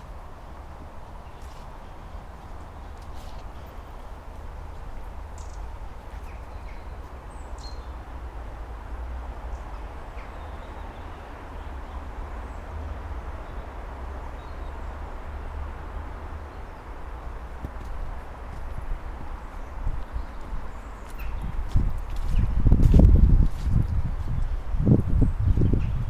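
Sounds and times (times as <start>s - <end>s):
wind rumbling on microphone: 17.0s - 26.0s.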